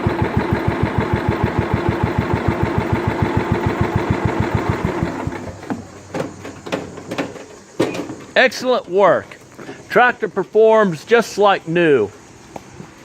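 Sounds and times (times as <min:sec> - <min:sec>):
engine running down to a stop: 0:00.0 - 0:05.8
lawn tractor engine idling: 0:00.0 - 0:06.5.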